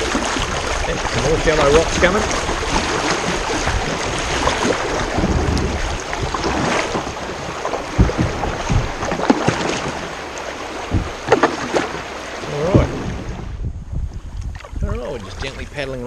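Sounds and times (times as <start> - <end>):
kayak paddle strokes splashing: 0.0 - 13.6
water washing around kayak: 0.0 - 16.0
short knocks: 6.2 - 9.9, 10.8 - 11.9.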